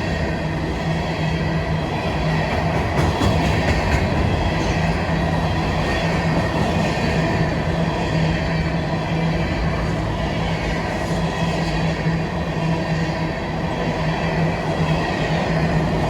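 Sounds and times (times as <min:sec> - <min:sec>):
freight train wheels rumbling: 0:00.0 - 0:16.0
sharp clacks of train wheels: 0:01.8 - 0:08.2.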